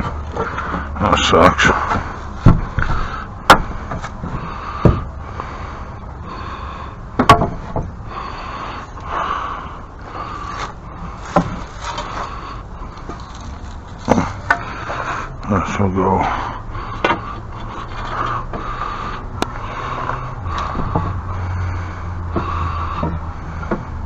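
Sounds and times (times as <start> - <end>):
objects knocking and scraping: 1.6 - 5.1, 7.2 - 8.0, 10.5 - 15.1, 17.0 - 18.7, 20.0 - 21.4, 22.3 - 24.0.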